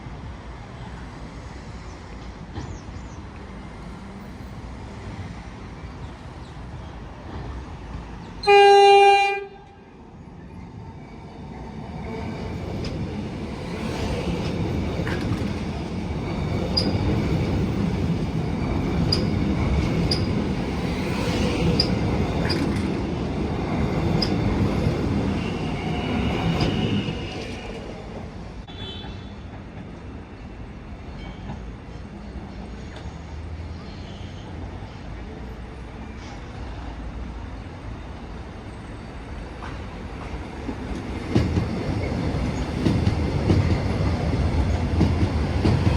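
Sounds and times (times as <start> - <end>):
train rumbling past: 0.0 - 45.9
train horn blast: 8.4 - 9.9, 28.7 - 29.4.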